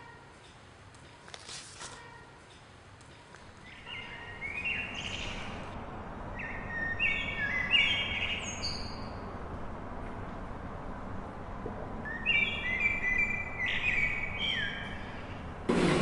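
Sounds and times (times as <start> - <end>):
birds chirping: 2.0 - 9.4, 11.9 - 15.6
steady background hum: 2.0 - 16.0.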